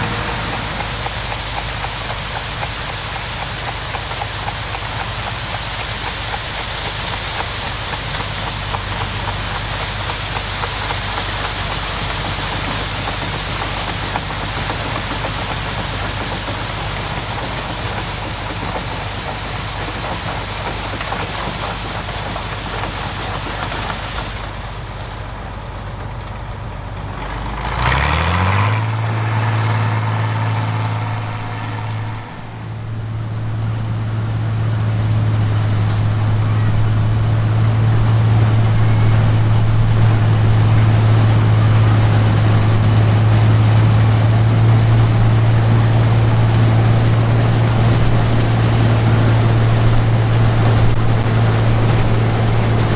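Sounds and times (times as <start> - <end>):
rushing noise of machine working: 0.0 - 25.4, 27.7 - 52.9
combine engine drone: 0.0 - 52.9.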